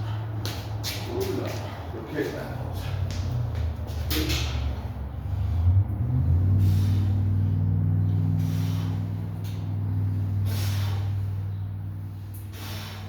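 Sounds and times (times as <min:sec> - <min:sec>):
steady low hum: 0:00.0 - 0:13.0
sharp exhalations of breath: 0:06.5 - 0:07.5, 0:08.3 - 0:09.4, 0:10.3 - 0:11.4, 0:12.3 - 0:13.0.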